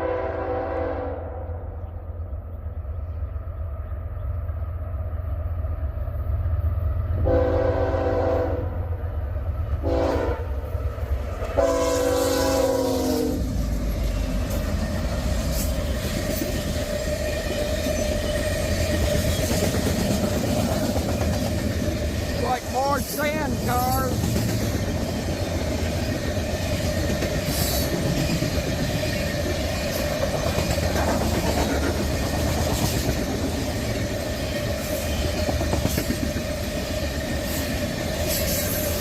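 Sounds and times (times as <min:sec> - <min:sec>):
locomotive air horn blasts: 0:00.0 - 0:01.6, 0:07.2 - 0:08.8, 0:09.8 - 0:10.6, 0:11.5 - 0:13.4
train rushing past: 0:00.0 - 0:39.0
locomotive engine rumble: 0:01.7 - 0:39.0
wheels clicking over rail joints: 0:13.5 - 0:39.0.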